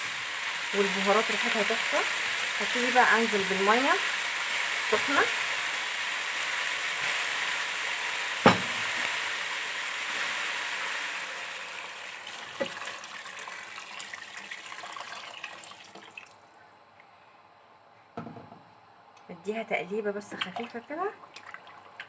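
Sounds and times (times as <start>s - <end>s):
hissing and sizzling in a pot: 0.0s - 16.2s
soft knock: 18.2s - 18.6s.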